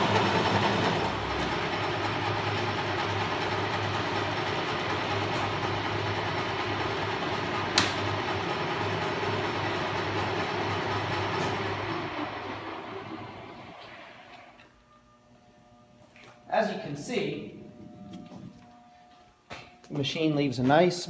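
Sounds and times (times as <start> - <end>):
metal lathe humming: 0.0 - 14.7.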